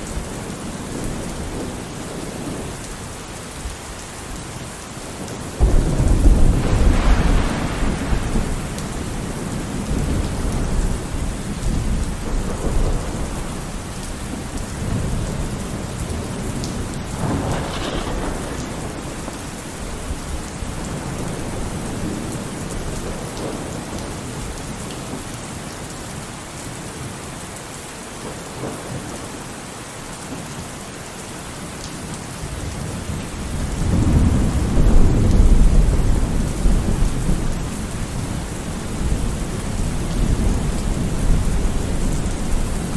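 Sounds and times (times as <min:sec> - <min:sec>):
rain falling: 0:00.0 - 0:42.9
rolling thunder: 0:05.6 - 0:24.0, 0:32.6 - 0:42.9.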